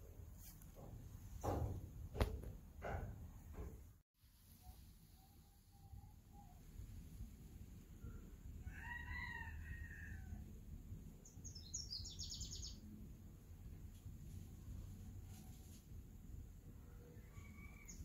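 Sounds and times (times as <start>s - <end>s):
high bird chirps: 11.4s - 12.8s.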